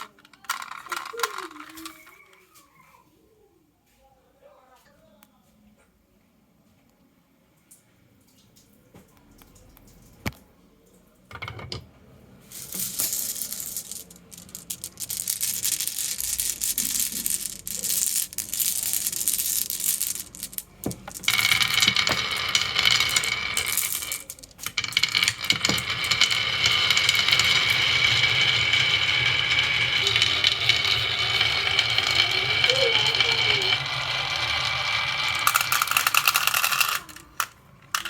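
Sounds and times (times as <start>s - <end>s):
marbles rattling down a track: 0.0s - 2.2s, 12.5s - 38.0s.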